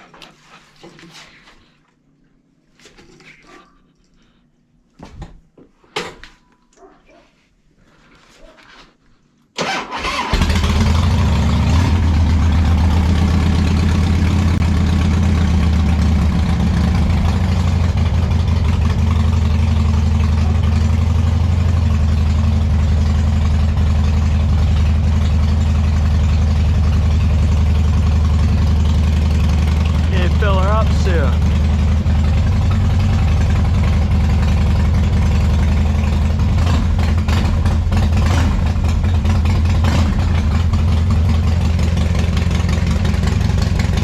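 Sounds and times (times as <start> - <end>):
motorcycle engine cranking and idling: 9.5 - 44.0.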